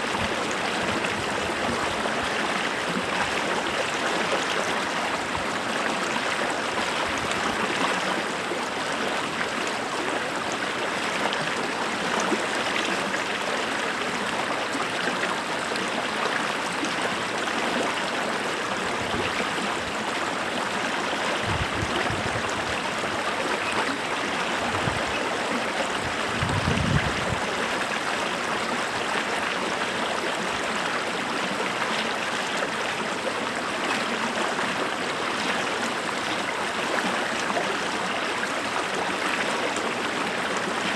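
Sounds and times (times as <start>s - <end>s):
creek running over rocks: 0.0s - 40.9s.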